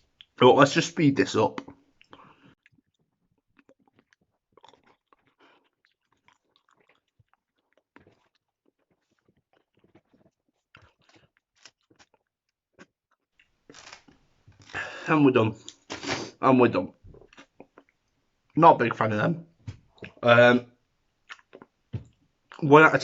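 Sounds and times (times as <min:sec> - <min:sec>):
chewing and wet mouth sounds: 0:00.0 - 0:00.4, 0:01.5 - 0:15.0, 0:16.9 - 0:18.6, 0:19.7 - 0:20.2, 0:21.2 - 0:22.6.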